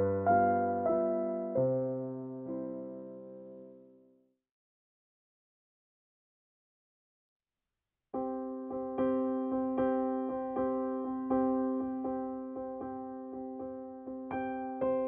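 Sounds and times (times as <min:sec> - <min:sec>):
electric piano music: 0:00.0 - 0:04.0, 0:08.2 - 0:15.0.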